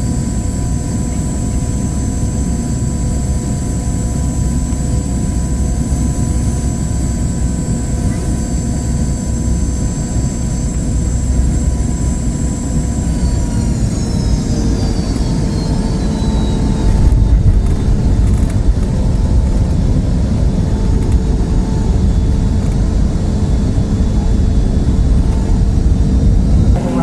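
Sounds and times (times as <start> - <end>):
deep cabin rumble: 0.0 - 27.0
jet engines spooling down: 5.8 - 27.0.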